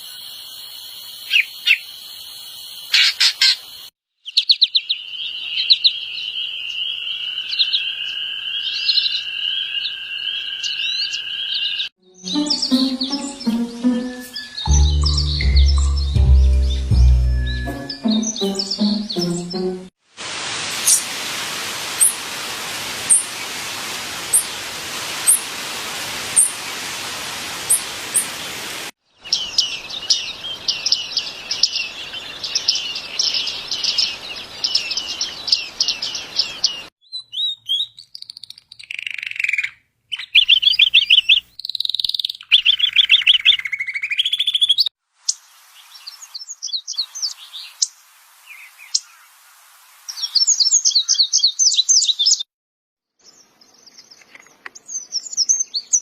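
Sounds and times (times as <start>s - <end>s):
songbirds chirping and singing: 4.3s - 19.9s
steady hiss: 20.1s - 28.9s.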